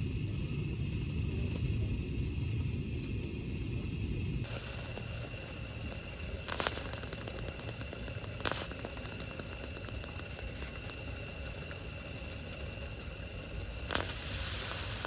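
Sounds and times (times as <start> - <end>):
steady hiss with crackling: 0.0 - 15.0
sharp clicks: 4.5 - 12.0.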